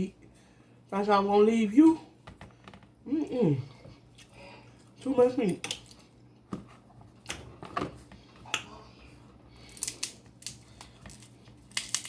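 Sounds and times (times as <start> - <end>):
crab shells cracking: 9.6 - 12.0.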